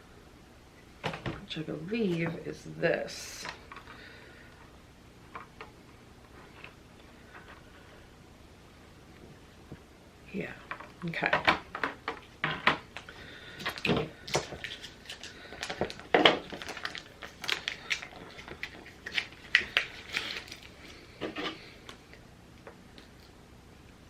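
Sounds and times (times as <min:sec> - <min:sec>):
hands handling plastic packaging: 0:11.7 - 0:22.1.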